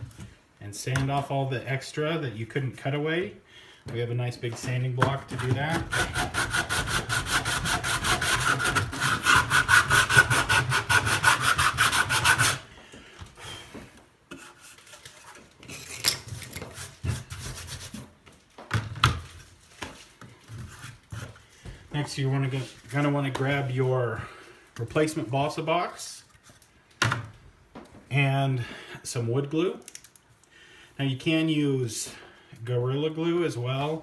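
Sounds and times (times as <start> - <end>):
sandpaper scrubbing wood: 5.4 - 12.6.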